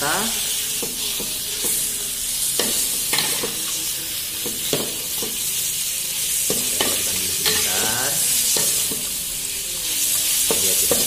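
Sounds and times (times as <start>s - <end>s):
meat sizzling in a wok: 0.0s - 11.0s
metal spatula scraping a pan: 0.4s - 3.8s, 6.2s - 11.0s.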